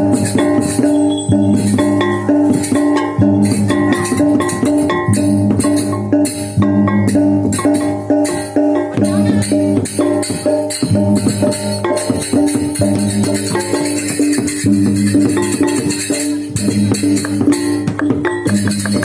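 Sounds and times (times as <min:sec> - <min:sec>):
metallophones playing fast figure: 0:00.0 - 0:19.0
small cymbals clashing: 0:00.0 - 0:19.0.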